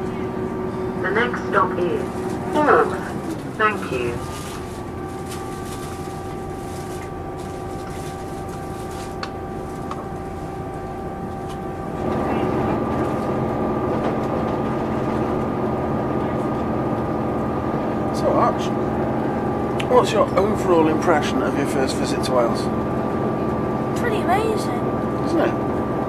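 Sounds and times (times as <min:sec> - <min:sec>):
train diesel engine droning: 0:00.0 - 0:26.0.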